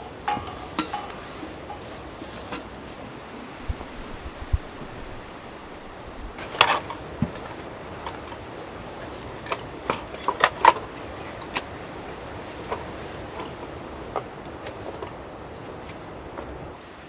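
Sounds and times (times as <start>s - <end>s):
steady low hiss: 0.0s - 10.2s.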